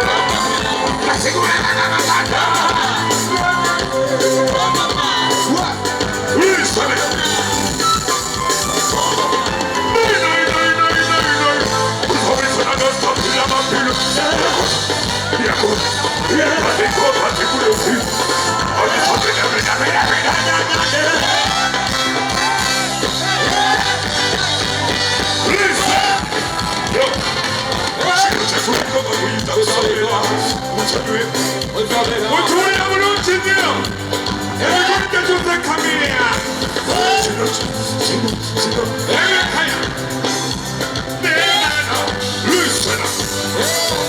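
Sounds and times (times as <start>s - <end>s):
loud band music: 0.0s - 44.0s.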